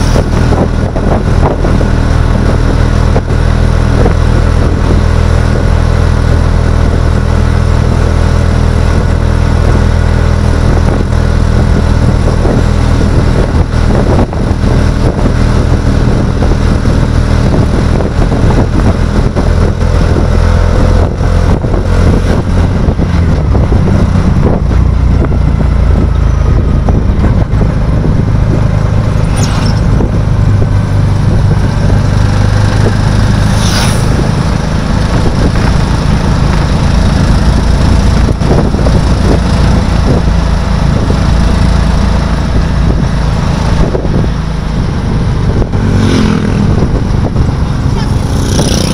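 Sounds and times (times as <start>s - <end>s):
vehicle engine running: 0.0s - 48.9s
brief high-pitched sounds: 29.2s - 30.0s.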